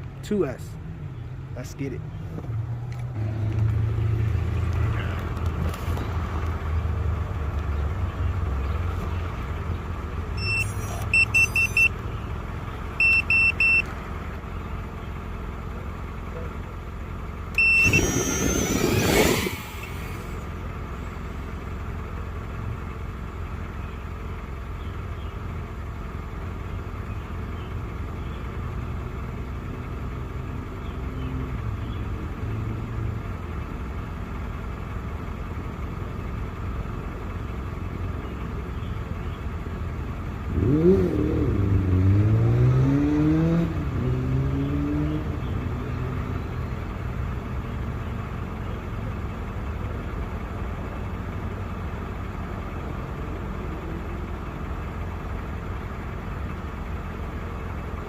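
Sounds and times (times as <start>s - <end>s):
low outdoor rumble: 0.0s - 42.8s, 43.4s - 58.0s
short high electronic beeps: 10.4s - 12.0s, 13.0s - 13.8s, 17.6s - 19.9s
quadcopter propellers whirring: 17.6s - 20.5s.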